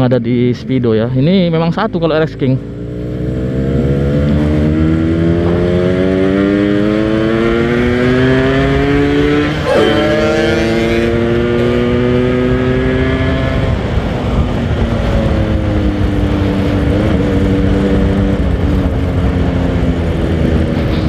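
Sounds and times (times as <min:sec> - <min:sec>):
wind rumble on microphone: 0:10.6 - 0:21.0.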